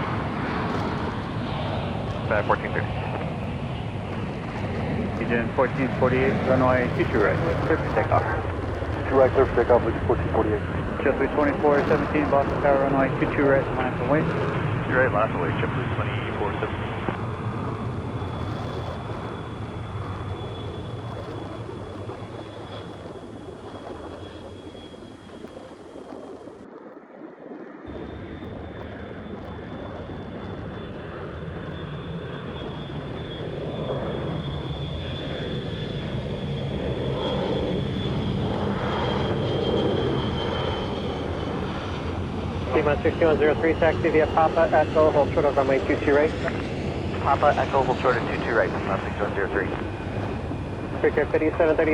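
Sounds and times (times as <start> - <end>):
jet engines rumbling with high whine: 0.0 - 51.9.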